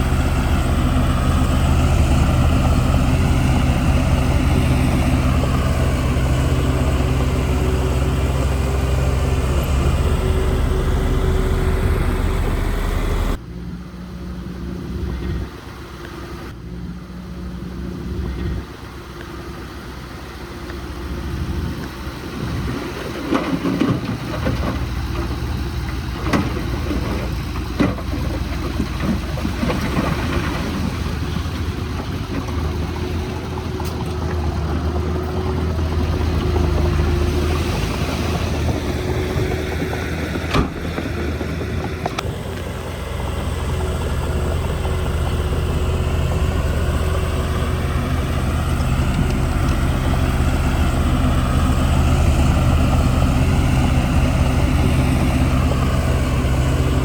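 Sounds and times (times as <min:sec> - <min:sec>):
heavy machinery diesel engine: 0:00.0 - 0:57.0
knocks and clanks: 0:23.0 - 0:34.9, 0:36.4 - 0:42.2.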